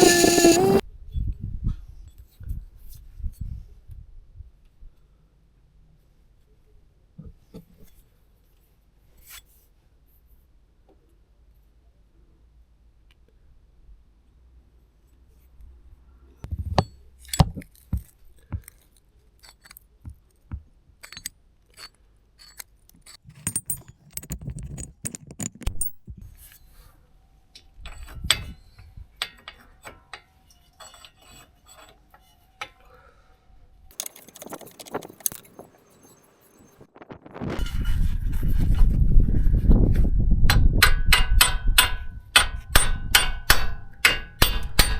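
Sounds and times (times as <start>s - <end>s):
metal tools clinking: 0.0s - 0.8s, 21.0s - 26.0s, 33.9s - 36.3s.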